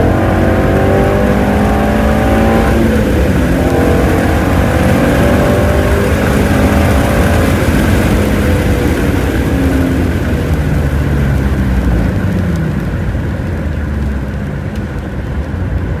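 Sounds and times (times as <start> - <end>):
car engine easing off: 0.0 - 16.0.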